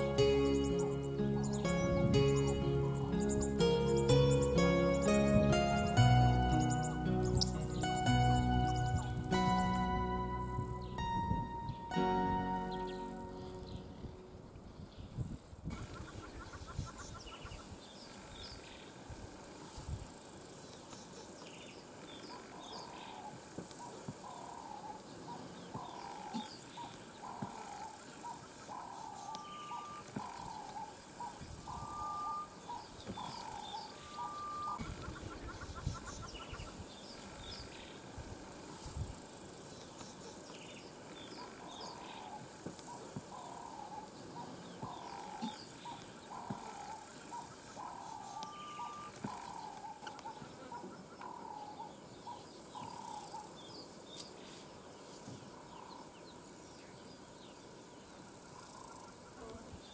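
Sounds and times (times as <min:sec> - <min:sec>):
bird calling repeated notes: 0:00.0 - 0:14.3, 0:28.7 - 0:31.0, 0:31.6 - 0:34.9, 0:47.8 - 0:50.4
faint bird chirps: 0:00.0 - 0:18.9, 0:20.7 - 0:38.0, 0:39.7 - 0:59.9
insect buzz: 0:56.8 - 0:59.9.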